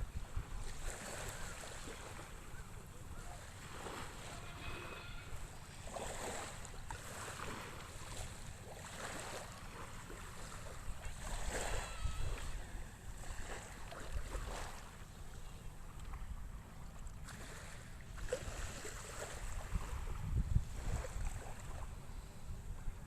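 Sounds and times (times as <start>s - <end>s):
wind rumbling on microphone: 0.0s - 2.5s, 10.4s - 14.7s, 18.2s - 23.0s
small waves lapping: 0.0s - 23.0s.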